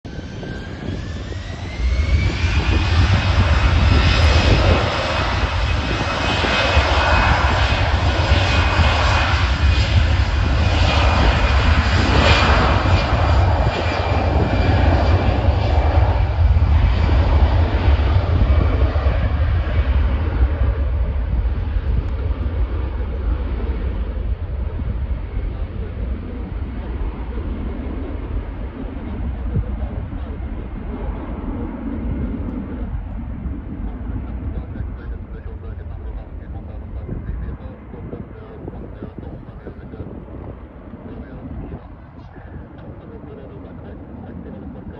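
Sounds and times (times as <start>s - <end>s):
jet airliner taking off: 0.1s - 44.9s.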